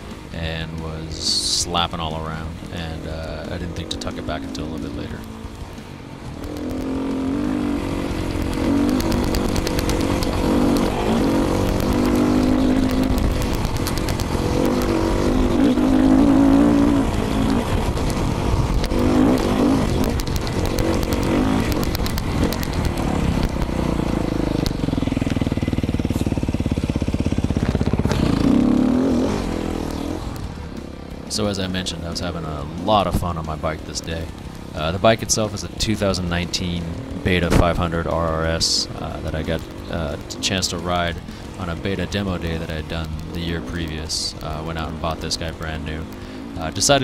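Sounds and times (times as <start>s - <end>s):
dirt bike engine revving: 0.0s - 47.0s
microphone rapid clicking: 4.8s - 31.2s.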